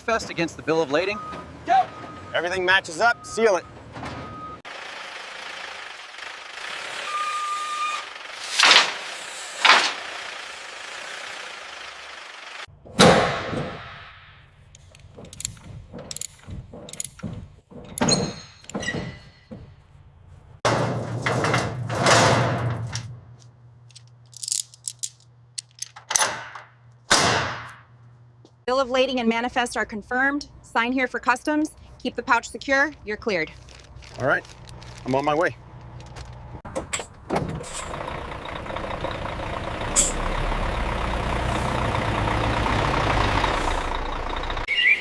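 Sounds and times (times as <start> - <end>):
mechanical clunks and whooshes: 3.7 - 4.6, 36.5 - 38.0
short beep: 7.1 - 8.0.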